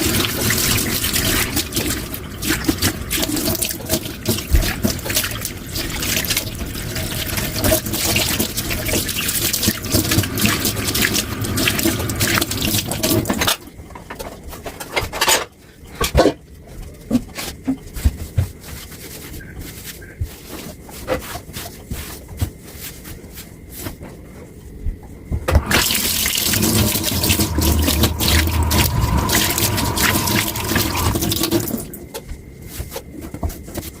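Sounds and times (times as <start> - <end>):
tap water running into sink: 0.0 - 13.3, 25.5 - 32.0.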